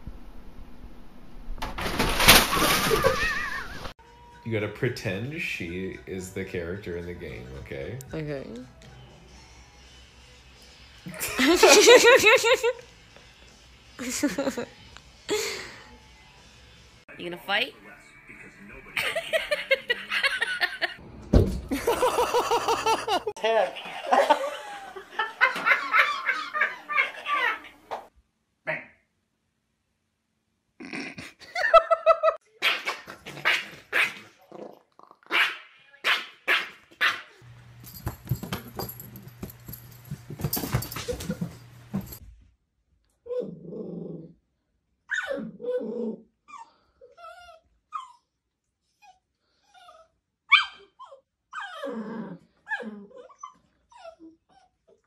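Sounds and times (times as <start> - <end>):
dog yapping: 32.6 - 34.3, 35.3 - 37.4, 50.5 - 51.8
puppy barking and growling: 32.6 - 37.4.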